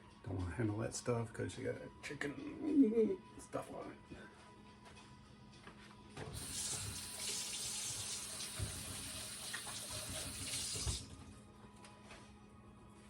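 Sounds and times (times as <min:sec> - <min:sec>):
kitchen tap running into sink: 0:06.3 - 0:11.3.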